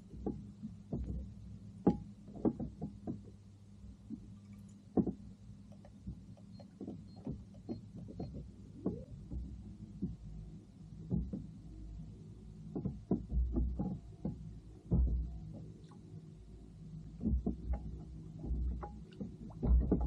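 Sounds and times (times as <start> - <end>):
low steady hum: 0.0 - 20.0
knocks on plastic kayak: 0.2 - 3.3, 12.7 - 15.7, 17.2 - 20.0.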